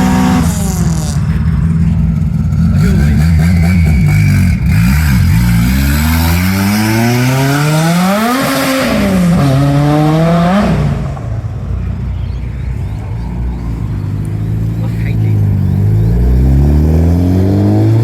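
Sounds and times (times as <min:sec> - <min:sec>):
car engine accelerating hard: 0:12.9 - 0:18.0.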